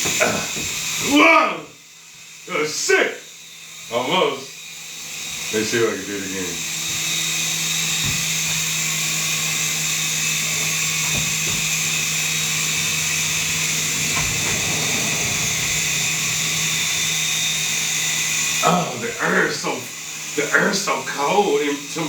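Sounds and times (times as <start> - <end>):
rc helicopter motor whine: 1.1 - 19.4
rotor blades humming: 9.4 - 19.4.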